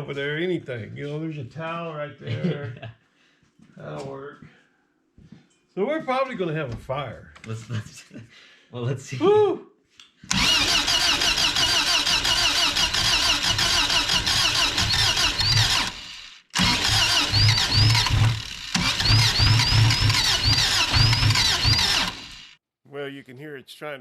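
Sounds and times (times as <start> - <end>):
engine cranking on starter: 10.3 - 22.6.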